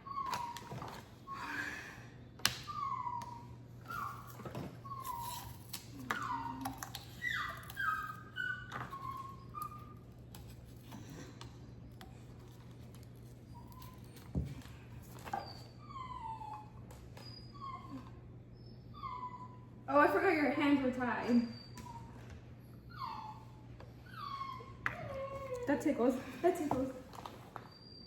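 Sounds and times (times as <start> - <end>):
dog whimpering: 0.0 - 1.9, 2.6 - 10.1, 15.2 - 19.8, 21.1 - 28.0.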